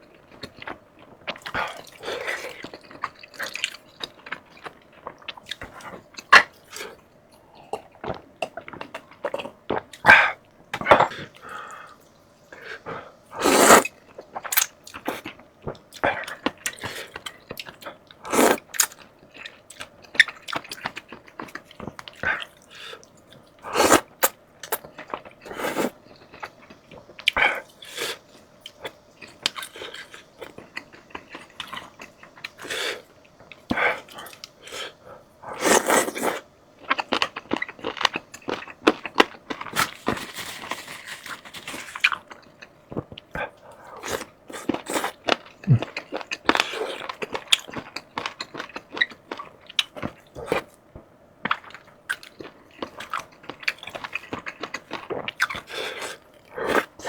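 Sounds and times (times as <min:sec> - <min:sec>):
crunching fried chicken: 0:13.4 - 0:50.8, 0:51.5 - 0:57.0.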